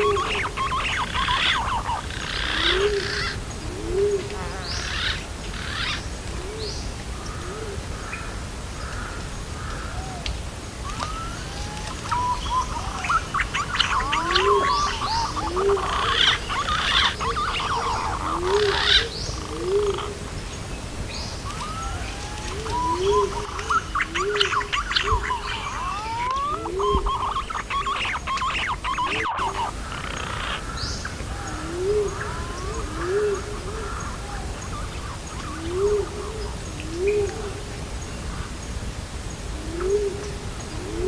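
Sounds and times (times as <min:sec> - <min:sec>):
pigeon low hooked calls: 0:00.0 - 0:06.6, 0:10.8 - 0:20.2, 0:21.4 - 0:37.4
high bird chirps: 0:21.4 - 0:30.6.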